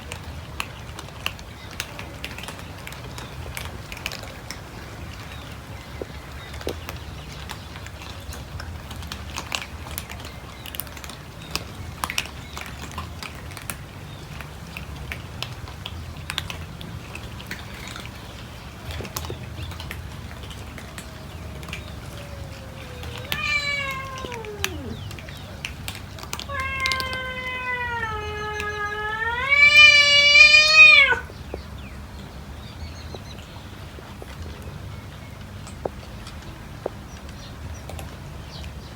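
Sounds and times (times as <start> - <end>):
cats chewing clicks: 0.1 - 31.7
cat meowing: 20.8 - 25.3, 26.4 - 31.3.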